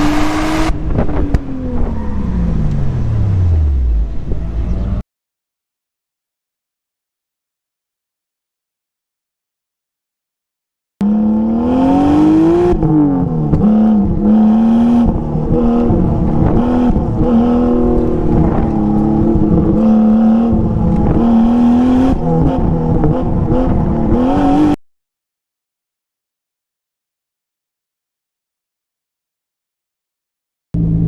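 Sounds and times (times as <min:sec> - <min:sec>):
car engine revving: 0:00.0 - 0:05.0, 0:11.0 - 0:24.8.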